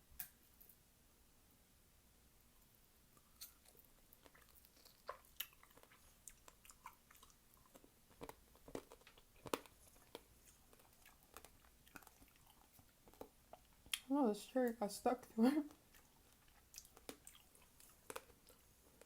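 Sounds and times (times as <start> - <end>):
crunching and chewing fruit: 3.1 - 14.1, 15.2 - 19.0.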